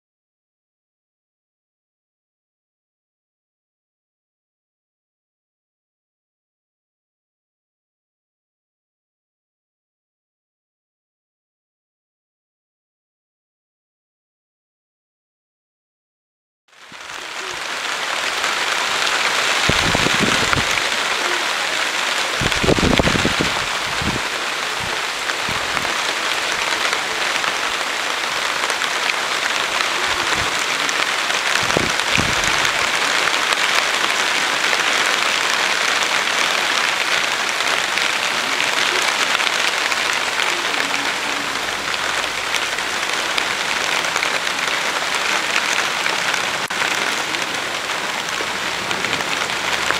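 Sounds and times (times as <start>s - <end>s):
dense rain falling: 16.7s - 49.9s.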